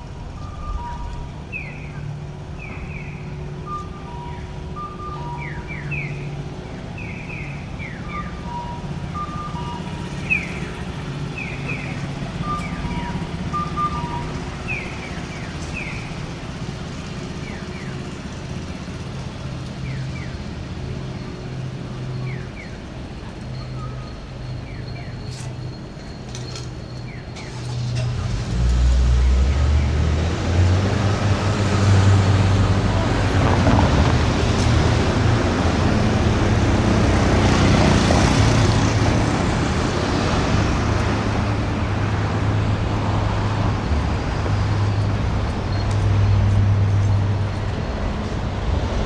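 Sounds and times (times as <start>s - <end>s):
traffic hum: 0.0s - 49.0s
crossing signal chirps: 0.2s - 2.0s, 2.7s - 6.4s, 7.0s - 16.2s.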